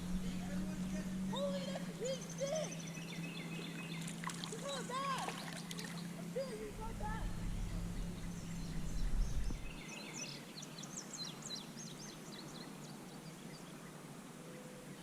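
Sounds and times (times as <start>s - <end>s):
low rumble: 0.0s - 2.2s, 5.4s - 9.8s
small bird chirping: 0.0s - 13.9s
faint outdoor background noise: 0.0s - 15.0s.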